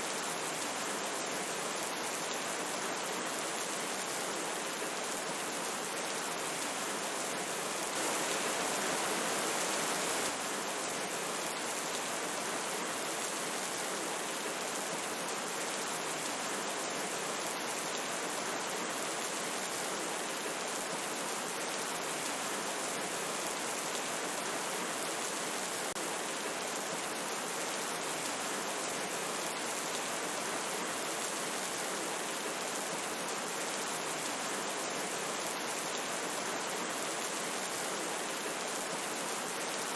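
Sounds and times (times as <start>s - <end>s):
rainfall: 0.0s - 39.9s
river water rushing: 7.9s - 10.4s.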